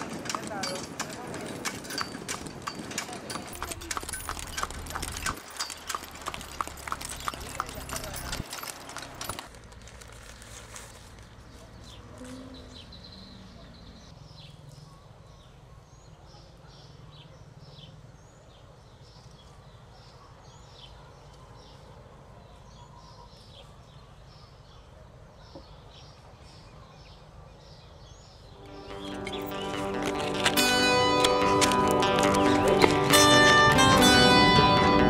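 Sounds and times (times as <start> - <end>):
birds chirping: 10.3 - 35.0.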